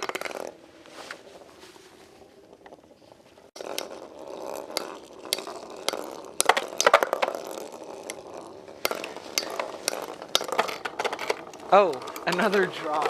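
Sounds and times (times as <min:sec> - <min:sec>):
spinning tops clacking: 0:00.0 - 0:00.6, 0:03.5 - 0:13.0
spinning tops whirring: 0:00.0 - 0:13.0.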